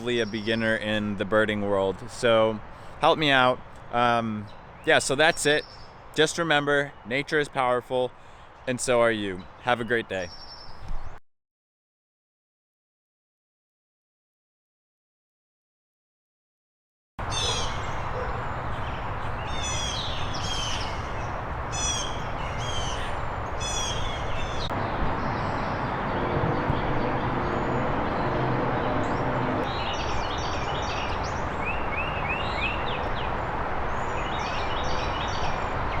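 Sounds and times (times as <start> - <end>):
steady background noise: 17.2 - 36.0
wild birds calling: 17.2 - 36.0.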